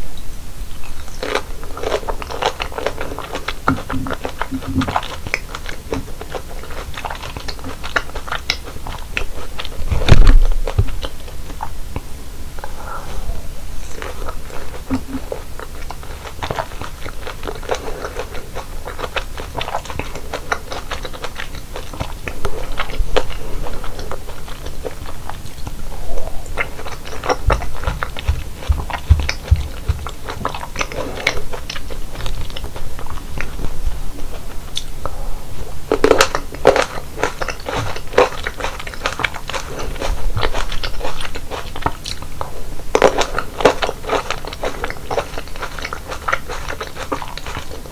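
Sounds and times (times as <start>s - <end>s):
crunchy chewing of fruit: 0.7s - 47.9s.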